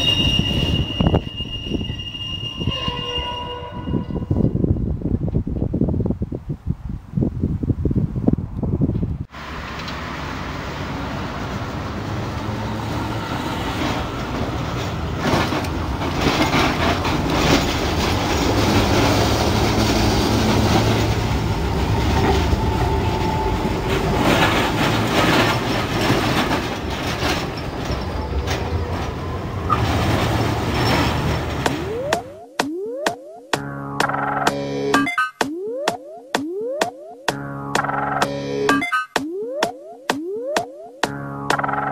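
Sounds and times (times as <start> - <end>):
tram low hum: 8.2 - 32.5, 33.6 - 35.0, 37.3 - 38.7
wheels clattering over rail joints: 13.6 - 32.4.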